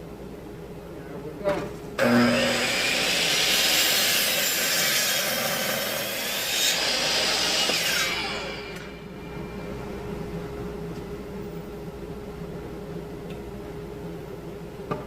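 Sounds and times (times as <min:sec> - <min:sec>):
miter saw cutting wood: 0:02.0 - 0:09.0
saw blade spinning down whine: 0:06.8 - 0:09.8.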